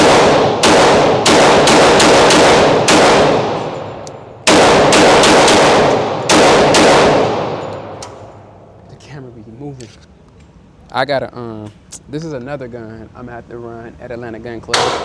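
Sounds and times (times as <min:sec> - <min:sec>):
pistol shots with echo: 0:00.0 - 0:08.4, 0:14.8 - 0:15.0.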